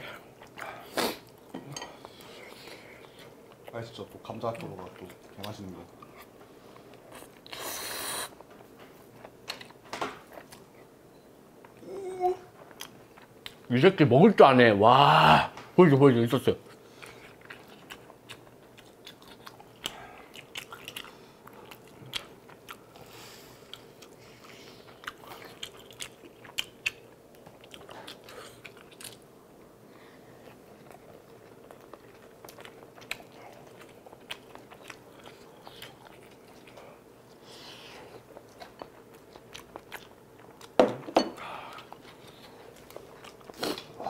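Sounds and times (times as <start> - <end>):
crunchy biting and chewing: 17.0 - 23.0.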